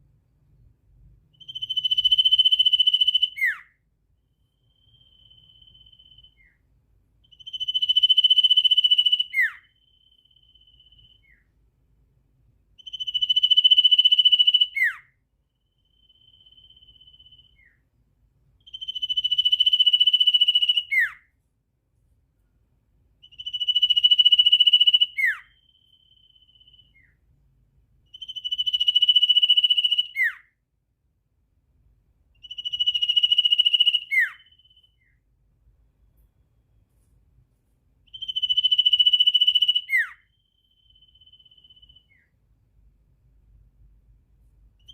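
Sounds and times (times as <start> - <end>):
bird long high whistle: 1.4 - 3.7, 4.6 - 6.6, 7.4 - 11.5, 15.8 - 17.8, 18.7 - 21.3, 23.2 - 27.2, 28.1 - 30.5, 32.4 - 35.2, 38.1 - 42.4
faint short bird whistle: 4.6 - 6.6, 7.4 - 11.5, 28.2 - 30.6, 32.5 - 35.2, 38.1 - 42.4.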